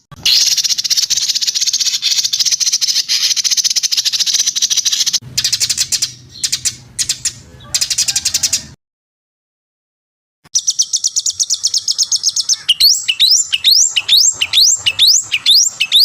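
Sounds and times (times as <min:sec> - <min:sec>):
songbird fast chattering trill: 0:00.0 - 0:08.7, 0:10.5 - 0:16.0
fast trilling in bursts: 0:10.9 - 0:16.0.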